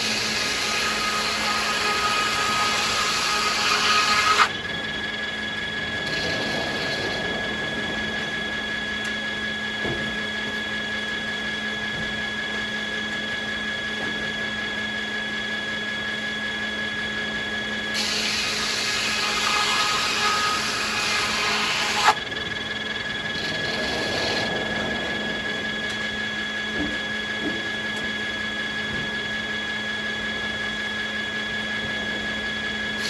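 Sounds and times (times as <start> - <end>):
sawmill machinery whine: 0.0 - 33.0
loud hissing noise: 5.4 - 9.8, 18.0 - 27.4.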